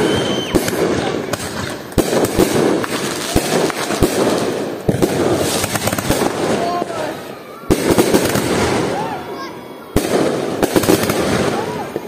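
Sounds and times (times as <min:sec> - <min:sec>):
whistles of rising shells: 0:00.0 - 0:00.8
fireworks banging: 0:00.0 - 0:12.0
fireworks crackling: 0:00.0 - 0:12.0.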